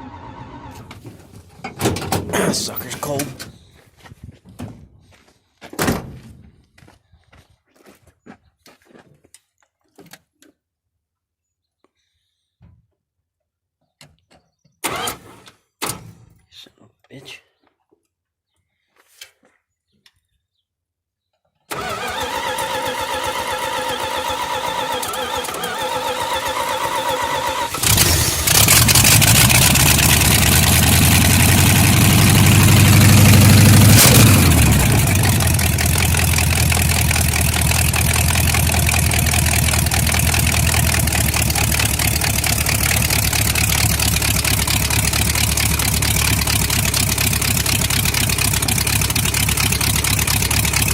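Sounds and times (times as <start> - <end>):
starter cranking engine: 14.8 - 15.2, 21.7 - 50.9
engine revving and idling: 21.7 - 50.9.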